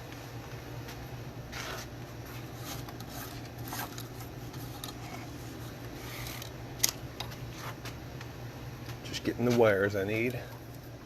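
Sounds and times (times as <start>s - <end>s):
steady low hum: 0.0s - 11.0s
wire and small parts rustling: 1.5s - 8.3s.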